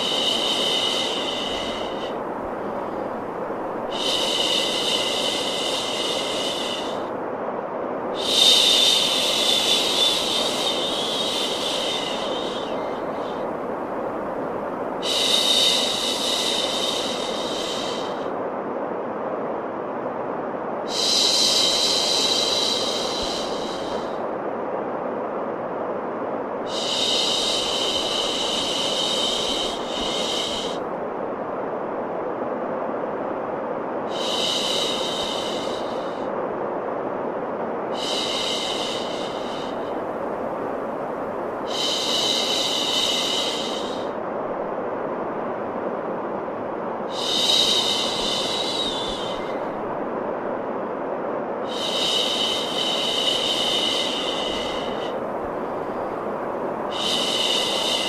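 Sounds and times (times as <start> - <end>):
high hiss: 0.0 - 58.0
white noise rush: 0.0 - 58.0
long high shushing: 8.2 - 18.3.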